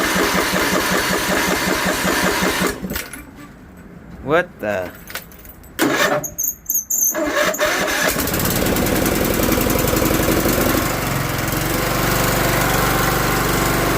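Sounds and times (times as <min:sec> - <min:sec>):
mower engine starting and running: 0:00.0 - 0:03.1, 0:05.8 - 0:06.3, 0:07.2 - 0:13.9.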